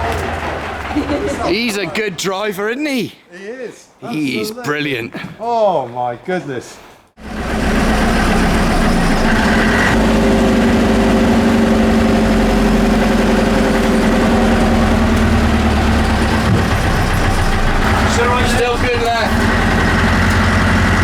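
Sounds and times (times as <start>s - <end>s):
diesel bus engine idling: 0.0s - 1.9s, 7.2s - 21.0s.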